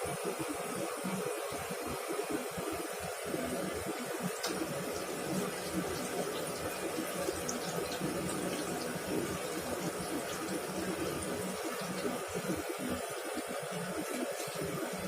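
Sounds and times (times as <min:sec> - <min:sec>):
prawns deep-frying in hot oil: 0:00.0 - 0:15.0.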